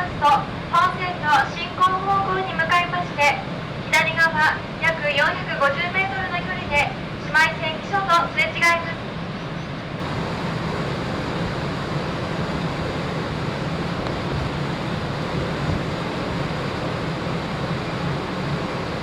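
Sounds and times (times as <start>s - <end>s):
ship low hum: 0.0s - 19.0s
wind: 0.0s - 19.0s
sea water rushing past ship: 10.0s - 19.0s.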